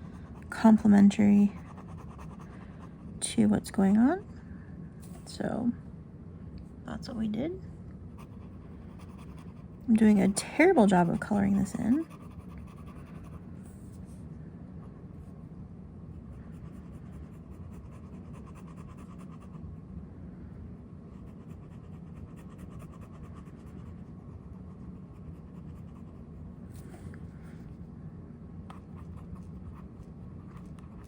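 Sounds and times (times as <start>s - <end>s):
pen scratching on paper: 10.5s - 13.4s.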